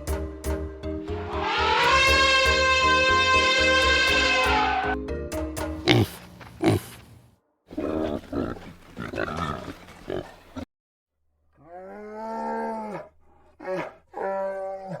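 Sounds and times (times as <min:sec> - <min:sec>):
pig grunting: 0:05.8 - 0:10.6.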